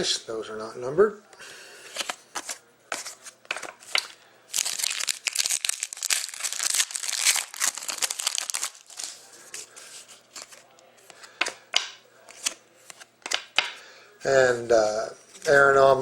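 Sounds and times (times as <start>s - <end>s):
wrapper crinkling and tearing: 3.9s - 9.4s.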